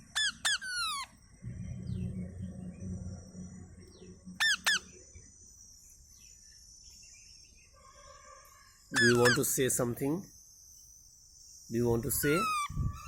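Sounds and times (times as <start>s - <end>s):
high insect buzz: 2.8s - 11.9s
parrot screeching: 9.0s - 9.4s, 12.2s - 12.7s.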